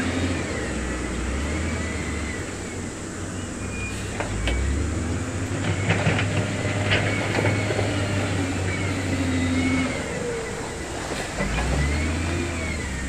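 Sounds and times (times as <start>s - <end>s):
diesel engine droning under load: 0.0s - 13.0s
faint squeal: 0.5s - 4.8s.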